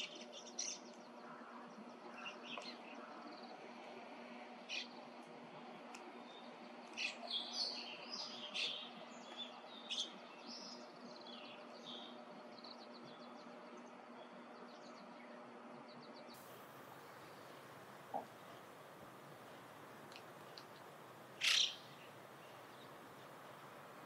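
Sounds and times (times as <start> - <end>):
bird chirps: 16.4 - 24.0.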